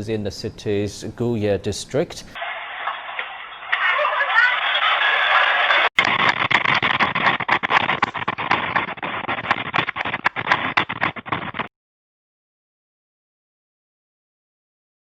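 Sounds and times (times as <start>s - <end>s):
loud rattling and clattering: 6.0s - 11.7s.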